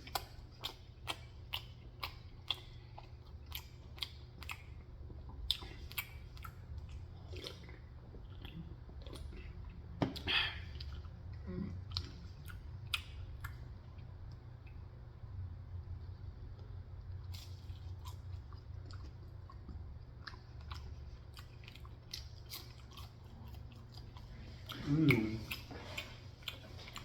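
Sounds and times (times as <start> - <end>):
person chewing food: 0.0 - 15.2, 16.2 - 27.0.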